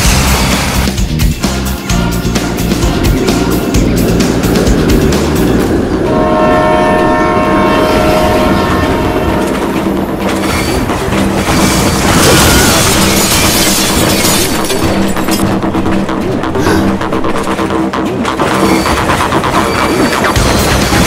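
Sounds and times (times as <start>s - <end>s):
loud rush of noise: 2.0s - 21.0s
multi-note train horn: 5.7s - 10.2s
train wheels clattering over rails: 8.8s - 21.0s.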